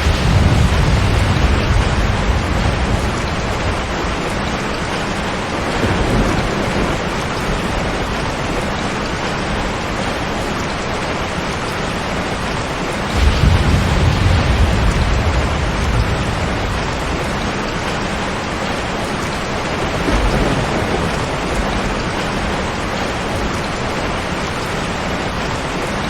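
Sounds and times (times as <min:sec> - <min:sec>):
low rumble: 0:00.0 - 0:04.6, 0:13.1 - 0:18.3
heavy rain falling: 0:00.0 - 0:26.0.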